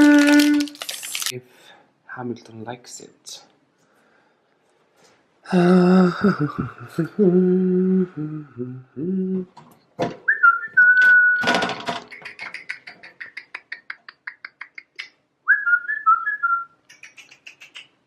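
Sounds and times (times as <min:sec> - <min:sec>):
person whistling: 0:10.3 - 0:11.5, 0:15.5 - 0:16.8.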